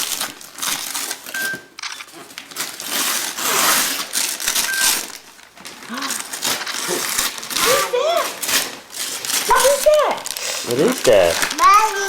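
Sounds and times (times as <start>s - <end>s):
wrapping paper tearing and crinkling: 0.0s - 12.0s
high beeps: 1.4s - 1.7s.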